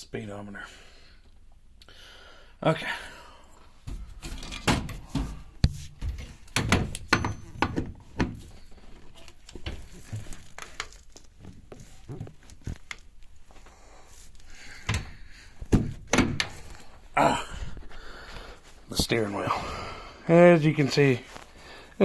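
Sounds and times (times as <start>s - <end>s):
knocks and thumps: 3.9s - 8.5s, 14.8s - 16.7s
rustling: 8.4s - 15.7s.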